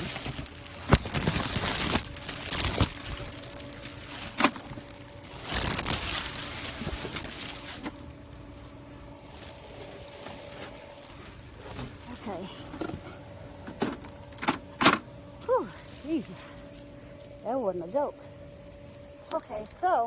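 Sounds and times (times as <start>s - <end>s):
packaging rustling and knocks: 0.0s - 8.1s
faint steady hum: 0.0s - 20.0s.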